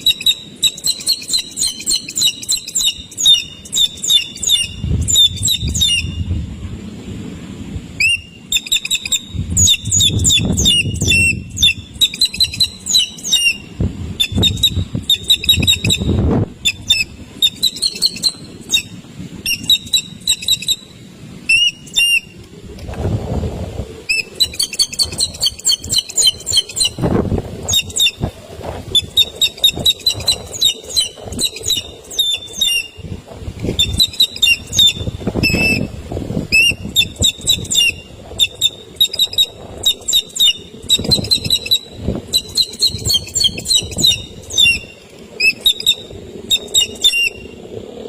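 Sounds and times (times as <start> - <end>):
low rustling or flapping: 22.4 - 32.1, 33.0 - 48.0.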